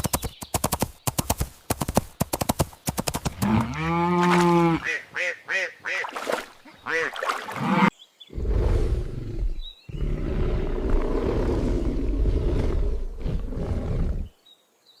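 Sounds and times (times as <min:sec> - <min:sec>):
big cat roaring: 0:07.6 - 0:14.3.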